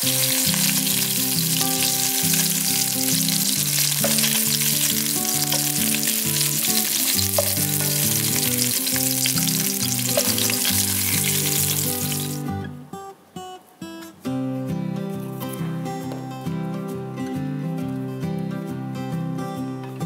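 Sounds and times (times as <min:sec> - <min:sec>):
fish sizzling in hot oil: 0:00.0 - 0:12.4
sharp crackles of frying: 0:00.0 - 0:12.5.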